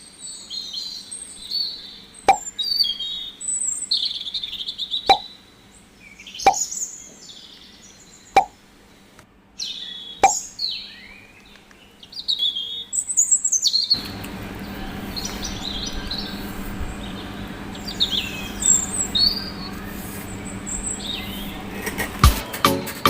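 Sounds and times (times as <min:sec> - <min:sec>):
small birds chirping: 0:00.0 - 0:22.3
low hum: 0:14.0 - 0:22.3.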